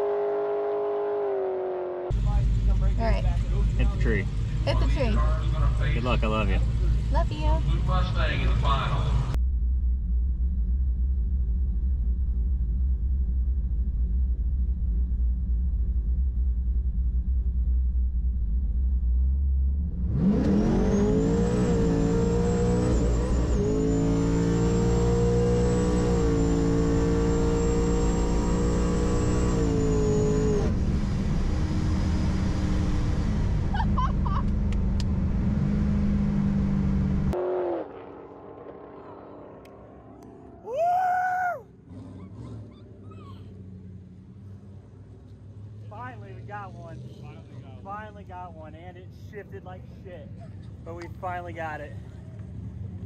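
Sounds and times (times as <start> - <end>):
car engine revving: 0.0 - 9.4, 18.4 - 40.8
supercharger whine: 0.0 - 42.4.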